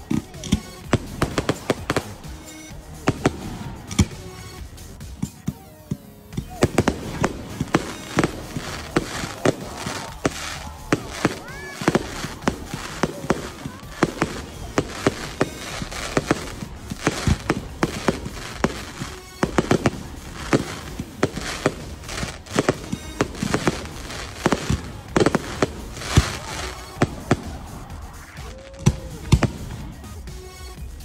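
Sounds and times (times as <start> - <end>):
firework shells bursting: 6.6 - 29.7.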